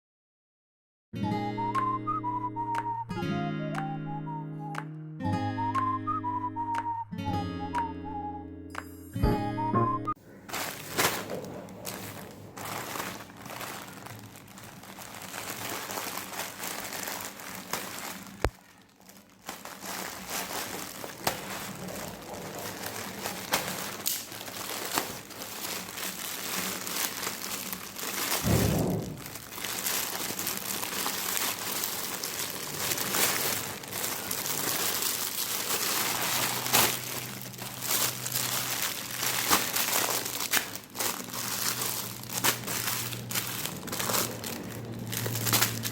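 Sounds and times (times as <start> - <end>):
plastic packaging crinkling: 10.2 - 45.9.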